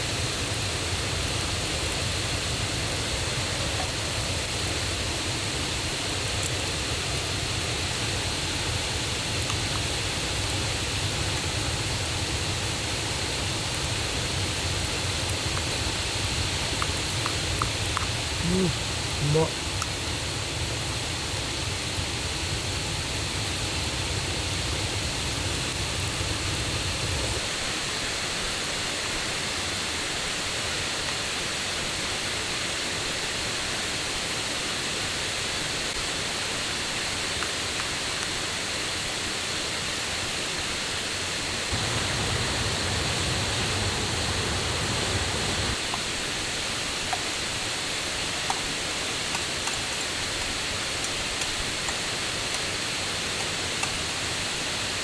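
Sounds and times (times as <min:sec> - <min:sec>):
river and waterfall rushing: 0:41.5 - 0:55.0.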